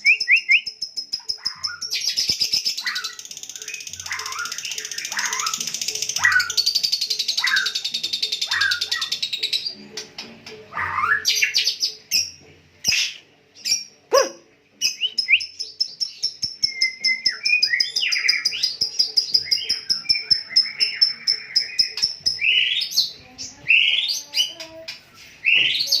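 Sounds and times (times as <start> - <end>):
songbird trills and whistles: 0.0 - 9.3, 14.8 - 23.1, 25.4 - 26.0.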